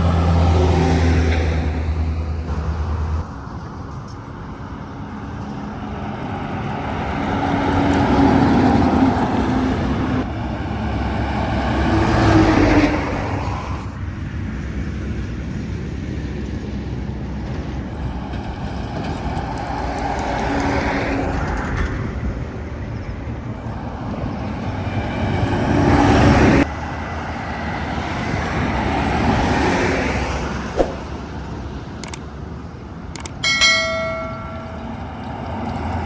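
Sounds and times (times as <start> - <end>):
heavy trucks driving past: 0.0 - 36.0.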